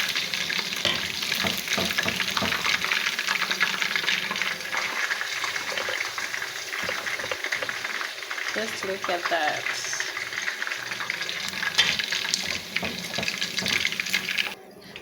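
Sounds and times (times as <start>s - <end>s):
chicken sizzling in hot oil: 0.0s - 14.6s
utensil knocks: 0.9s - 2.9s.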